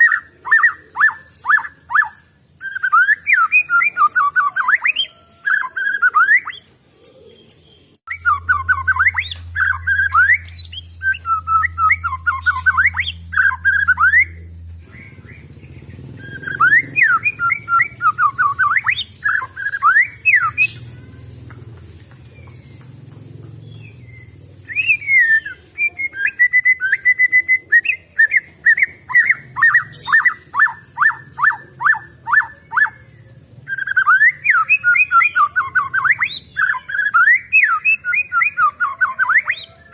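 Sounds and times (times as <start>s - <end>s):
bird singing whistled phrases: 0.0s - 6.7s, 8.1s - 15.5s, 16.2s - 20.9s, 24.0s - 39.9s
steady low hum: 8.1s - 19.2s.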